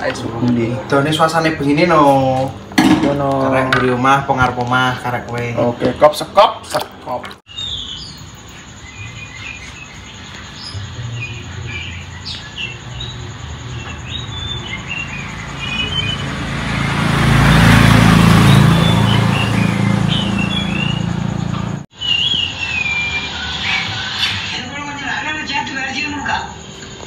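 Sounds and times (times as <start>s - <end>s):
bird chirping: 6.9s - 27.0s
vehicle passing: 10.7s - 21.9s.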